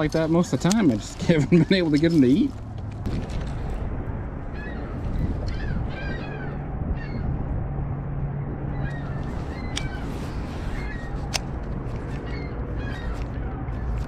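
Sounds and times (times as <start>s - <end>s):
wind: 0.0s - 14.0s
birds squealing: 4.5s - 7.5s, 8.7s - 14.0s.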